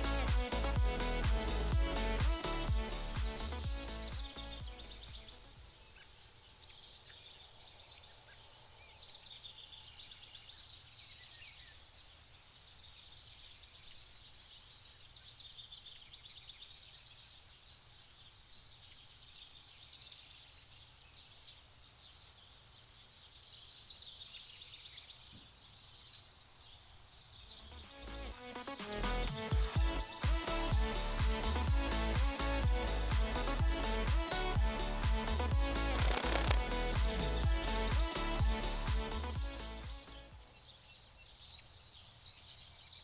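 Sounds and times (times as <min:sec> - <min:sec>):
faint low rumble: 0:00.0 - 0:05.8
small birds chirping: 0:03.2 - 0:27.9, 0:29.5 - 0:43.0.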